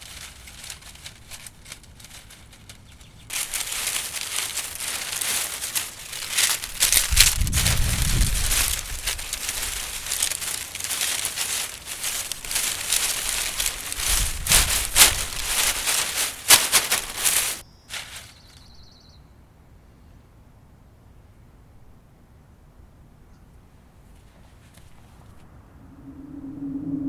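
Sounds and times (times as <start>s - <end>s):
dry leaves crinkling and crackling: 0.0s - 18.8s.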